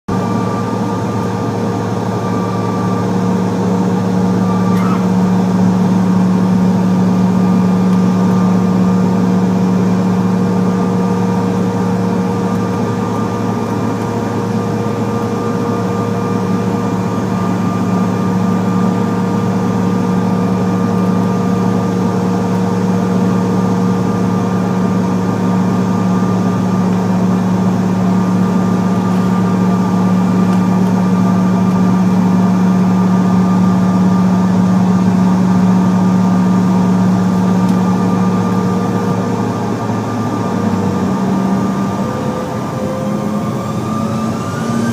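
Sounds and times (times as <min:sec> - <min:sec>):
constant whining tones: 0:00.1 - 0:44.9
jet engine drone: 0:00.1 - 0:44.9.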